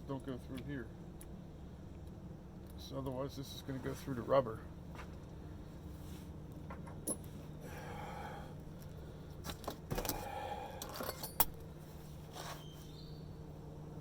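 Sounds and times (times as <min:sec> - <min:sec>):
metal tools clinking and scraping: 0:10.8 - 0:11.6.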